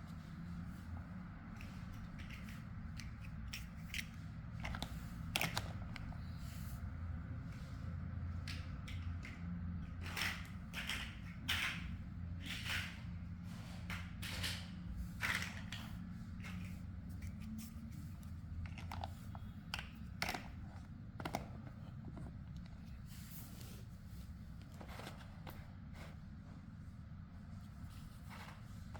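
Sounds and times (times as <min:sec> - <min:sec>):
plastic blocks clicking: 0:01.9 - 0:06.1, 0:10.0 - 0:13.0.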